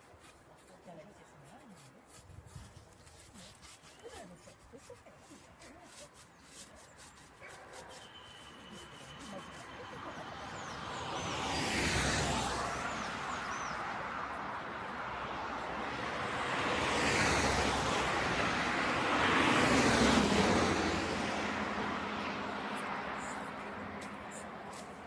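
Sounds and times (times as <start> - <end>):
vehicles passing: 7.5 - 25.0.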